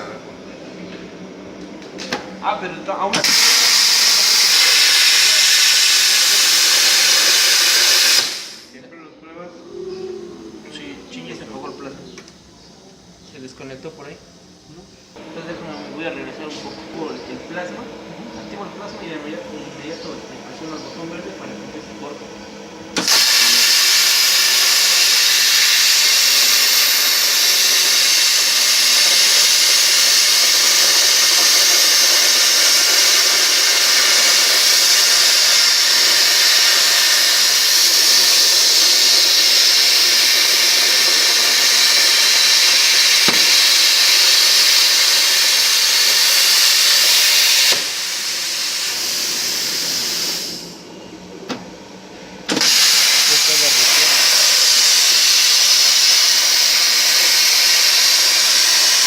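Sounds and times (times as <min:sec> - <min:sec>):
plasma cutter arc hissing: 0:03.1 - 0:08.8, 0:22.9 - 0:50.9, 0:52.4 - 0:59.0.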